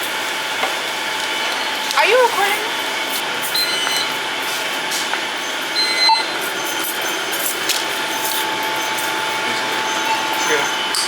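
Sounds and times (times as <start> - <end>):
shop background noise: 0.0 - 11.0
short high electronic beep: 3.5 - 4.2, 5.4 - 7.2.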